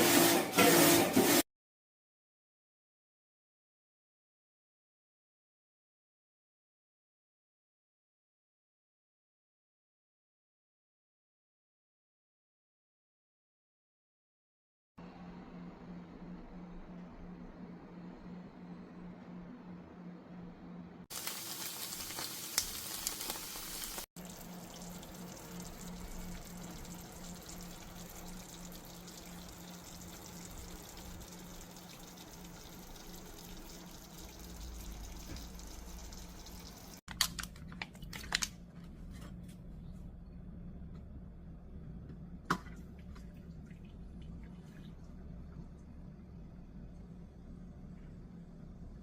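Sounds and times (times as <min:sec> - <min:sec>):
water running: 0:21.1 - 0:37.0
water drips: 0:21.2 - 0:37.0
low steady hum: 0:23.9 - 0:49.0.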